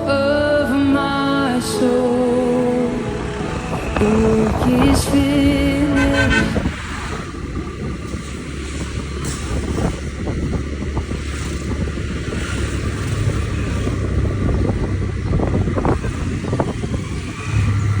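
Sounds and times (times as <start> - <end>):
low rumble: 0.0 - 8.6
wind buffeting microphone: 0.0 - 18.0.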